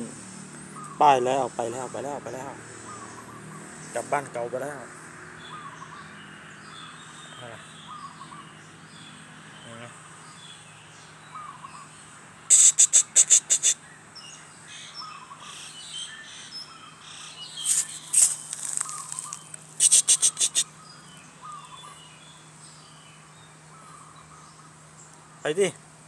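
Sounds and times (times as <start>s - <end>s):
bird singing sharp high notes: 12.5s - 13.8s, 14.9s - 22.2s
soft short bird chirps: 12.5s - 13.8s, 17.1s - 22.2s.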